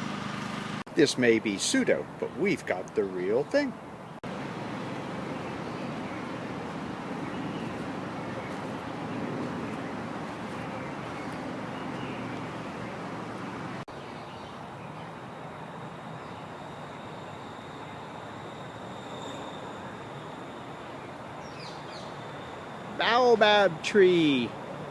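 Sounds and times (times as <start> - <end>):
distant traffic: 0.0 - 24.9
thin high tone: 15.9 - 21.0.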